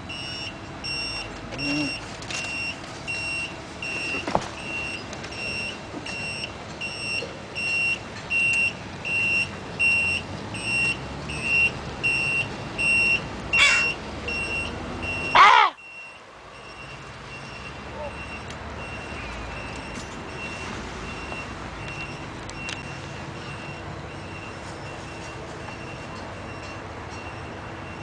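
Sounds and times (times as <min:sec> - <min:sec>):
door-open warning chime beeping: 0:00.1 - 0:13.2, 0:13.8 - 0:28.0
bird harsh call: 0:13.6 - 0:14.0, 0:15.4 - 0:15.8.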